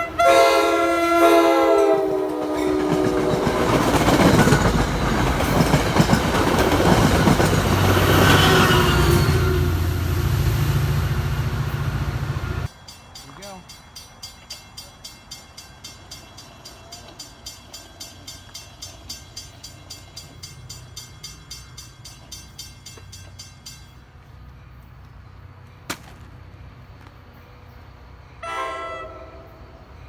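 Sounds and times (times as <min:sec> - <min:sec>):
train horn: 0:00.0 - 0:03.9, 0:07.9 - 0:10.3, 0:28.4 - 0:29.9
train wheels clicking on rail joints: 0:02.1 - 0:10.2, 0:12.6 - 0:27.8.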